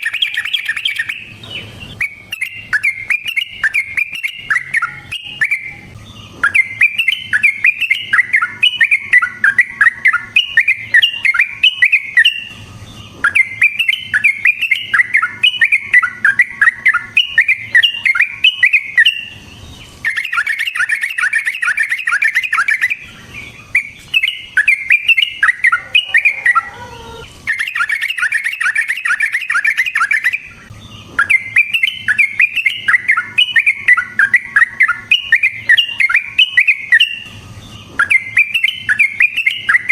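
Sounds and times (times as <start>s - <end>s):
bird singing chattering notes: 0.0s - 39.9s.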